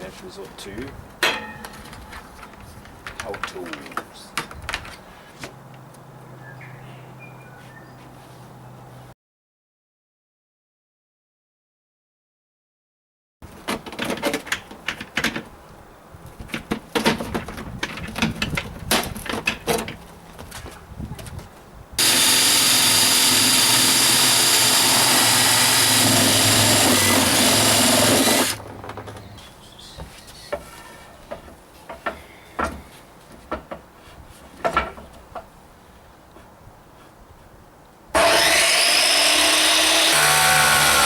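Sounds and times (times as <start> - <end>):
clicks and knocks of handling: 1.3 - 6.0
power tool cutting plastic: 22.0 - 28.6, 38.2 - 41.0.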